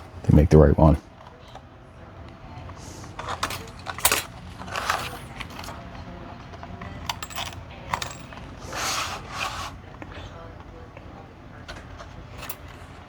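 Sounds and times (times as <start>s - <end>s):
metal battery parts clicking and jingling: 2.6s - 9.7s, 11.6s - 13.0s.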